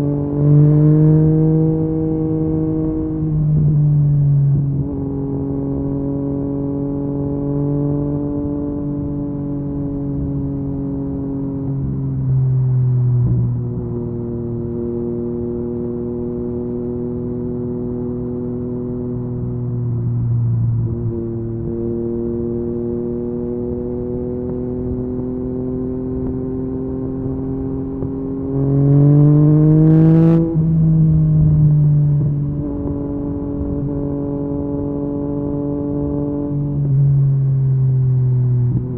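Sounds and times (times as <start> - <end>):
motorcycle engine revving: 20.8 - 37.4.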